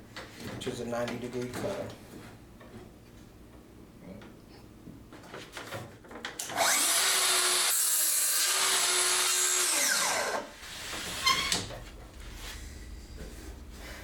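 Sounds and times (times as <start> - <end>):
circular saw cutting board: 6.5 - 11.7.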